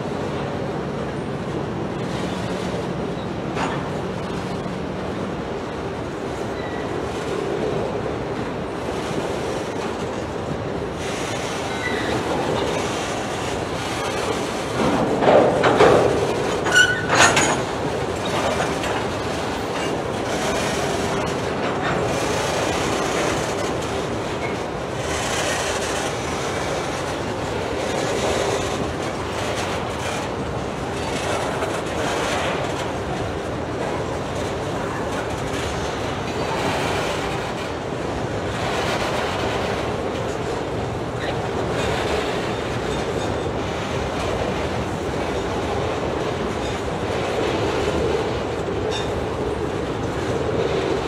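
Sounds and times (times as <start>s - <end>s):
steady train rumble: 0.0s - 51.0s
wheels clicking over rail joints: 0.2s - 4.7s, 8.9s - 51.0s
high wheel squeal: 6.5s - 6.9s, 11.7s - 12.3s, 16.6s - 17.6s.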